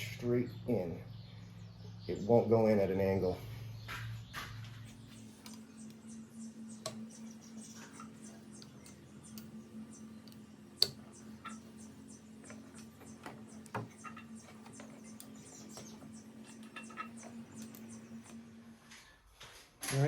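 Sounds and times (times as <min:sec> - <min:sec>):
faint steady hum: 0:00.0 - 0:19.5
fuel injectors clicking: 0:03.8 - 0:18.4.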